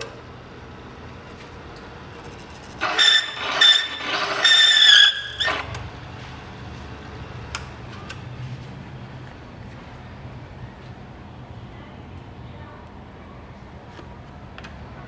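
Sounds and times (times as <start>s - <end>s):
motorcycle starter whine: 2.6s - 6.1s.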